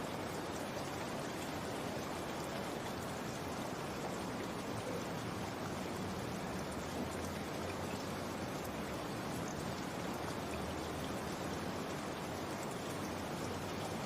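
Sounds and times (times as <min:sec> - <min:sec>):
steady rainfall: 0:00.0 - 0:14.0.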